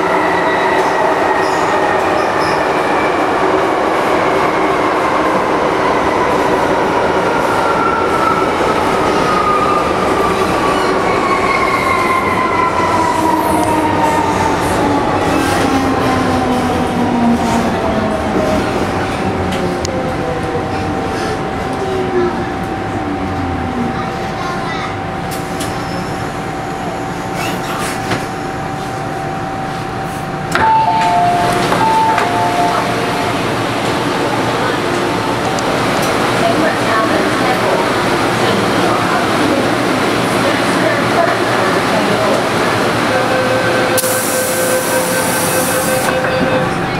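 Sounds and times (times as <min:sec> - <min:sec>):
train wheels rumbling on track: 0:00.0 - 0:46.9
high and low door chime beeps: 0:30.6 - 0:32.9.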